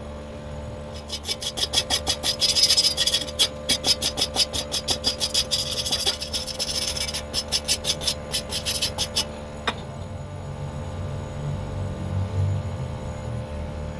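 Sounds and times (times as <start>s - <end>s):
hand tool scraping metal pipe: 0.9s - 9.4s.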